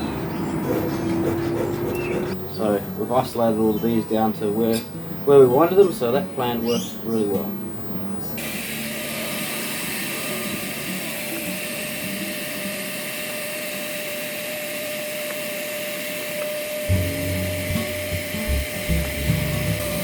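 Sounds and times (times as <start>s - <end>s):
vacuum hissing and whining: 8.1s - 20.0s.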